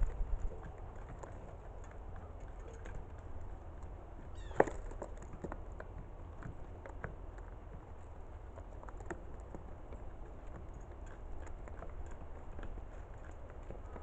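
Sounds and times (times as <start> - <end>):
low steady rumble: 0.0 - 14.0
bird call: 4.3 - 4.7.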